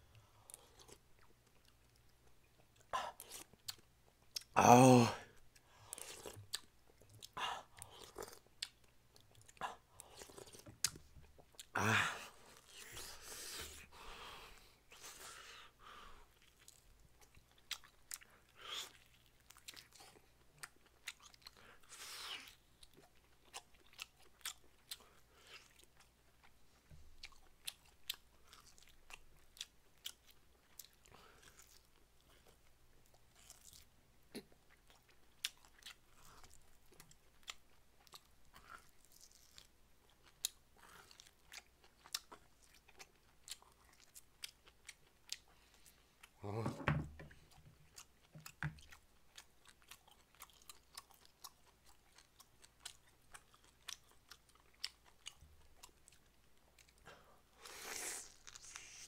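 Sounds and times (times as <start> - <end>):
man chewing meat: 0.1 - 4.6, 5.4 - 46.4, 47.1 - 59.0
breathy mouth sounds: 57.0 - 59.0.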